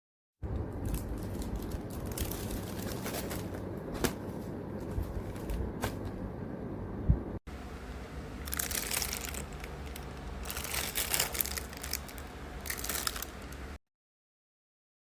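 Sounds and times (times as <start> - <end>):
rustling and scraping: 0.9 - 6.2.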